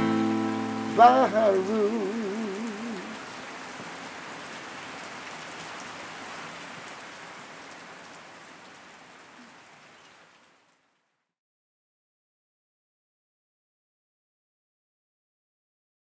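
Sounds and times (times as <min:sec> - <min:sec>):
steady rain falling: 0:00.0 - 0:11.2.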